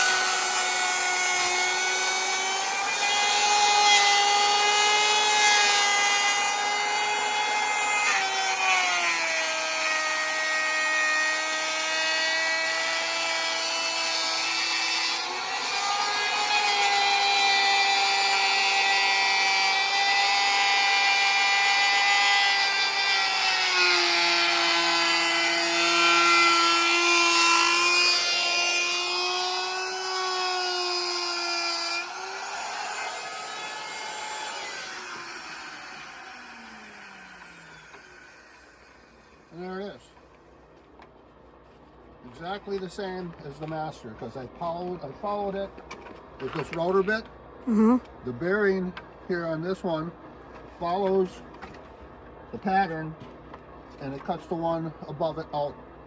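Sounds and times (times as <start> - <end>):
wood router whining: 0.0 - 41.0.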